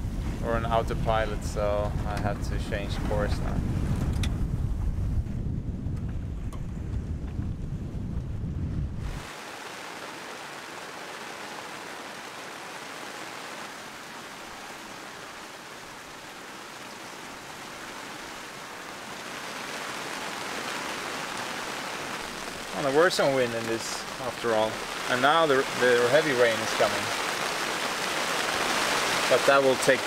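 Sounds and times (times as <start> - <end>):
wind buffeting microphone: 0.0 - 9.4
rain hissing: 8.4 - 30.0.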